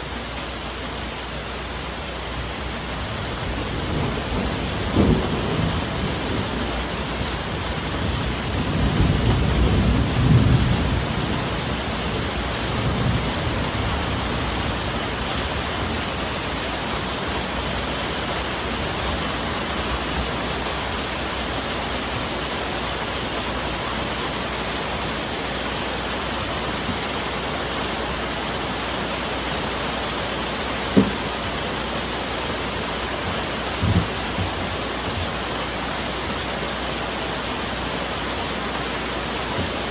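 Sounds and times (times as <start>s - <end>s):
rain falling in a forest: 0.0s - 39.9s
distant thunder rumble: 2.7s - 17.8s, 32.5s - 35.5s
short dull knocks: 30.9s - 31.3s, 33.2s - 35.3s.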